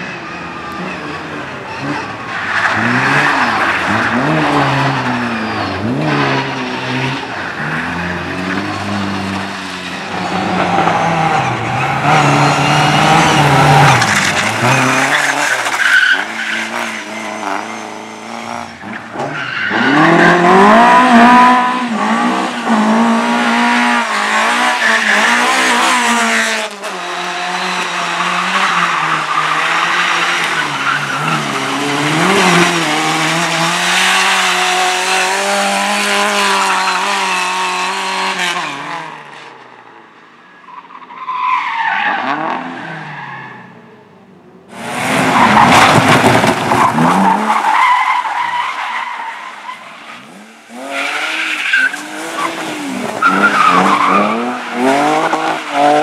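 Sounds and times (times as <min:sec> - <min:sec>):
race car engine revving: 0:49.0 - 0:56.0.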